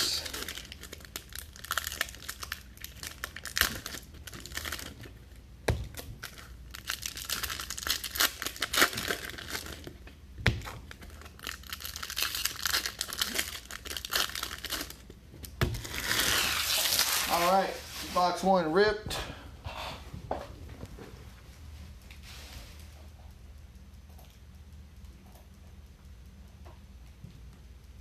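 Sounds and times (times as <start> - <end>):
foil wrappers crinkling and tearing: 0.0 - 5.3, 5.9 - 10.0, 10.6 - 15.1, 15.7 - 18.4.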